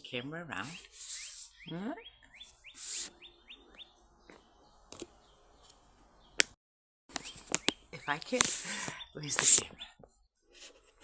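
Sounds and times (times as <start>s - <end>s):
songbird chirping: 0.0s - 11.0s.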